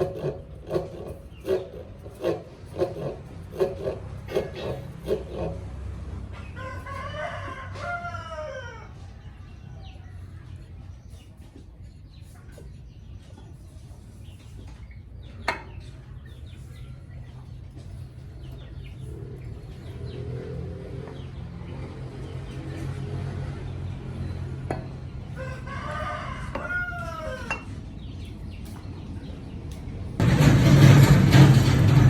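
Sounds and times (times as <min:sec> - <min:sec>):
rooster crowing: 0:06.5 - 0:09.0, 0:25.3 - 0:27.7.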